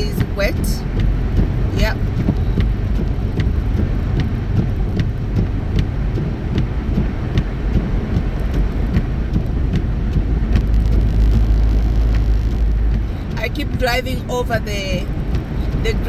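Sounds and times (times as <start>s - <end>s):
wet road and tyre noise: 0.0s - 16.0s.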